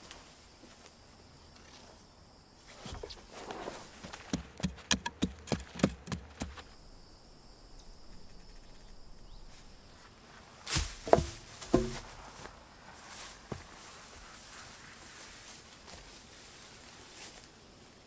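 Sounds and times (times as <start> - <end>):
faint insect hum: 0.0 - 18.0
sharp knocks: 4.0 - 6.7, 10.7 - 12.1.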